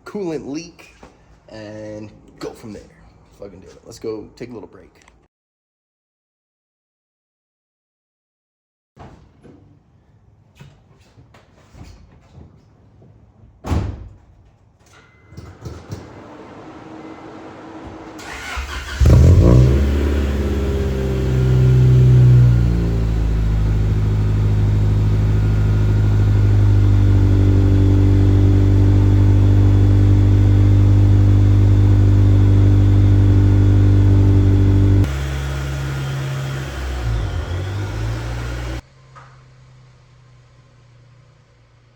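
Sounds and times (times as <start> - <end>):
car engine starting and idling: 16.0 - 41.9.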